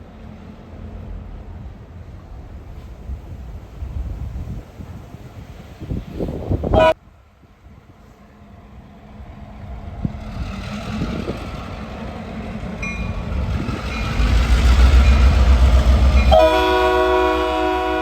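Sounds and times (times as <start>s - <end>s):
diesel train rumble: 0.0s - 18.0s
wind on microphone: 1.6s - 7.0s, 9.2s - 17.6s
train horn chord: 16.2s - 18.0s.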